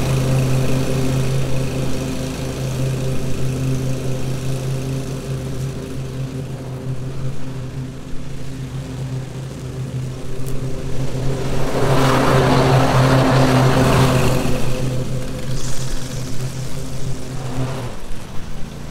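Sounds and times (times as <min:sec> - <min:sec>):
lawn mower engine running: 0:00.0 - 0:18.9
loud rushing noise: 0:09.8 - 0:18.9.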